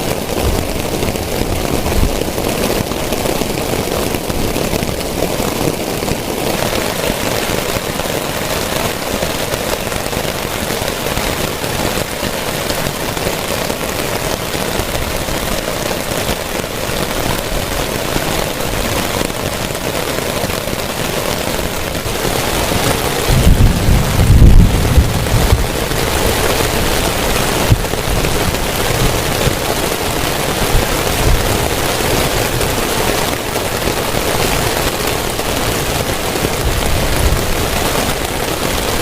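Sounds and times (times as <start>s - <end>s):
heavy rain falling: 0.0s - 39.0s
thunder rumbling: 20.4s - 33.3s.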